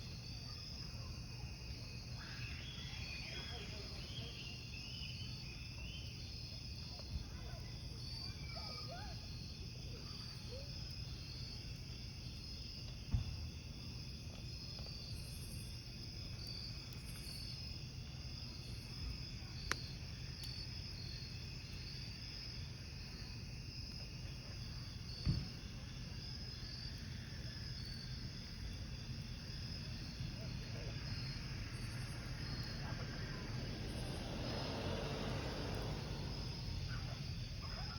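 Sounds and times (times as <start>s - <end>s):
crickets chirping: 0.0s - 37.9s
wood fire hissing: 0.0s - 37.9s
burning logs popping: 9.3s - 37.7s.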